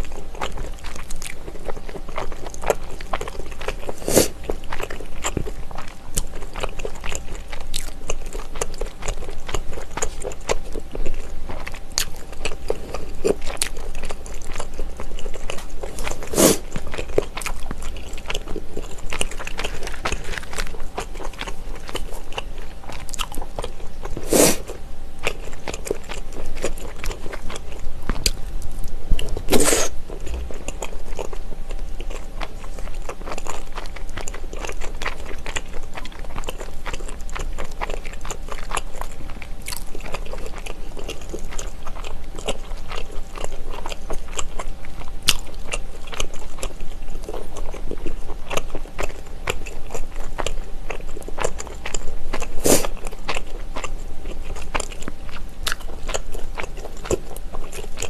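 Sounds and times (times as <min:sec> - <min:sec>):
chewing with wet mouth sounds: 0:00.0 - 0:58.0.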